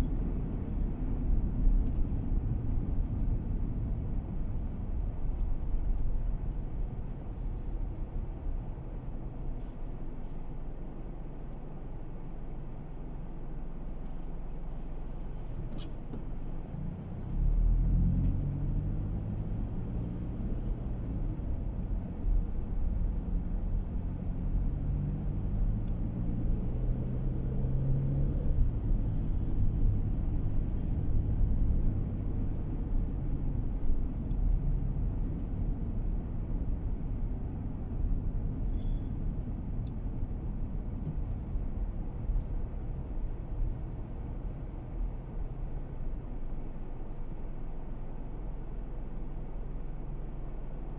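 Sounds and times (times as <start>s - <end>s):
road rumble inside car: 0.0s - 50.9s
car engine accelerating: 16.4s - 38.7s.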